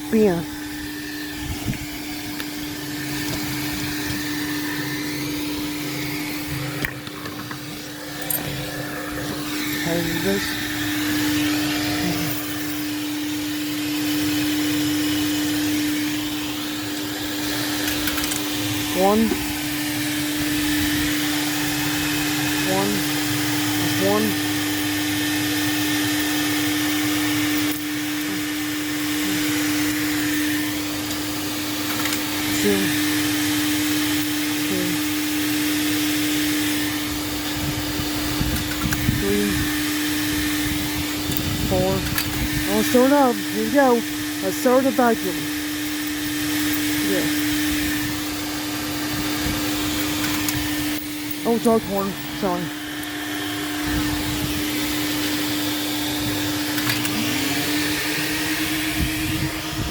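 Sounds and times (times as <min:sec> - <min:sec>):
vacuum motor hum: 0:00.0 - 0:59.9.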